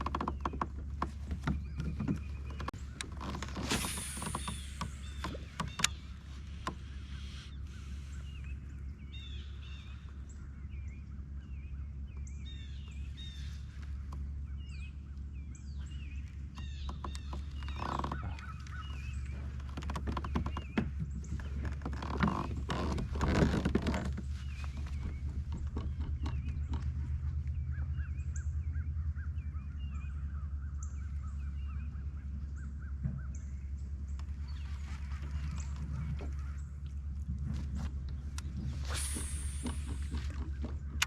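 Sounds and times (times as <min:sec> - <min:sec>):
kayak knocks: 0:00.0 - 0:07.8, 0:16.5 - 0:27.2
small birds chirping: 0:00.0 - 0:41.0
water splashes: 0:01.3 - 0:05.8.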